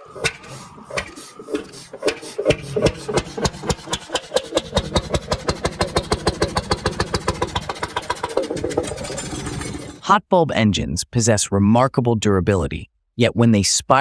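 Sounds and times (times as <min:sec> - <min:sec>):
old engine starting: 0:00.0 - 0:10.0.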